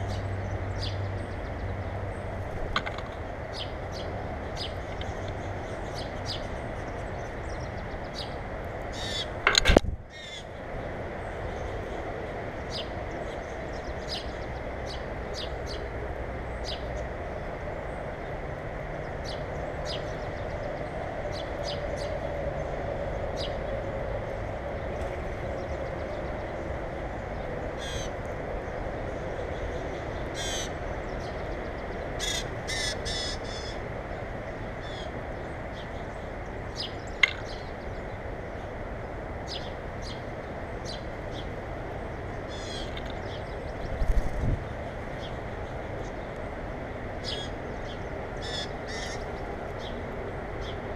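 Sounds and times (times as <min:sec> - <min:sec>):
birds chirping: 0:00.0 - 0:17.1, 0:24.8 - 0:46.5, 0:47.2 - 0:50.9
steady background noise: 0:00.0 - 0:50.9
harsh bird calls: 0:08.9 - 0:10.6, 0:27.8 - 0:28.2, 0:30.0 - 0:30.8, 0:32.0 - 0:33.8, 0:42.3 - 0:44.4, 0:47.2 - 0:49.9.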